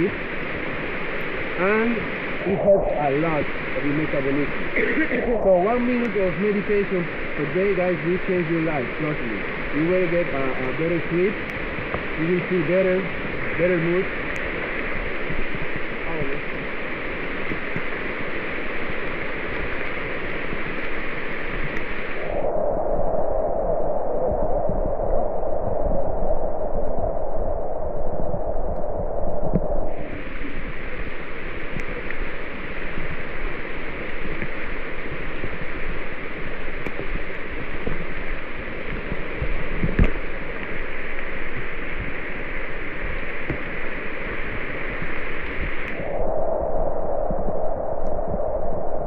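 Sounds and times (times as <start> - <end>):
heavy rain hissing: 0.0 - 22.4, 29.8 - 46.0.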